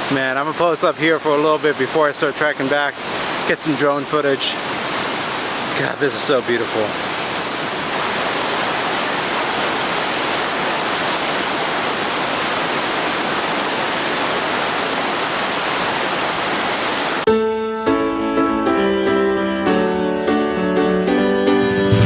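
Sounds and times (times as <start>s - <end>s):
waterfall rushing: 0.0s - 17.3s
piano music: 17.3s - 22.0s.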